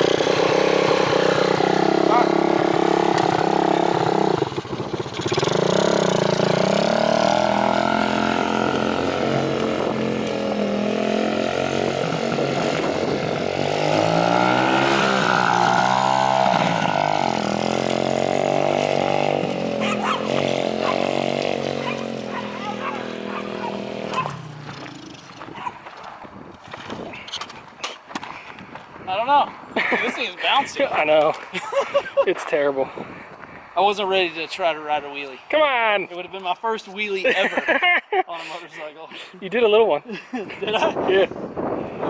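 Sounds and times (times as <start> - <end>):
minibike engine revving: 0.0 - 25.7.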